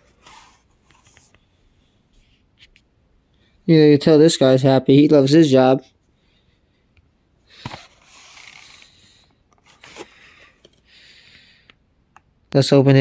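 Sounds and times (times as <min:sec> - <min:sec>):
faint rustling hiss: 0:00.0 - 0:04.6.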